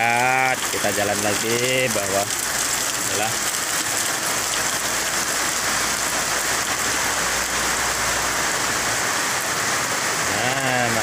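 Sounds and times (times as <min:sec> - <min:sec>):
man speaking: 0:00.0 - 0:02.3, 0:03.1 - 0:03.4, 0:10.2 - 0:11.0
heavy rain pouring: 0:00.0 - 0:11.0.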